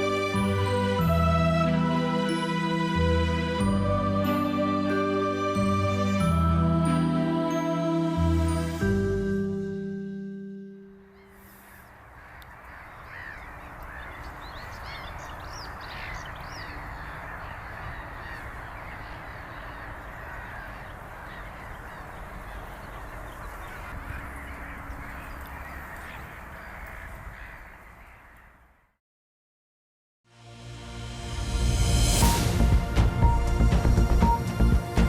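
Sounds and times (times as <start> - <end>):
chorus of birds calling: 11.1 - 28.8
high bird chirps: 12.8 - 26.4.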